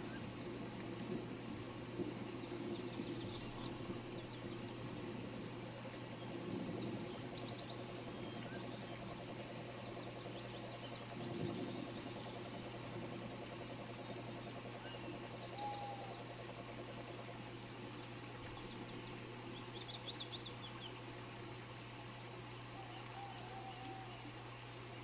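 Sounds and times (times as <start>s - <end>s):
steady rain hiss: 0.0s - 25.0s.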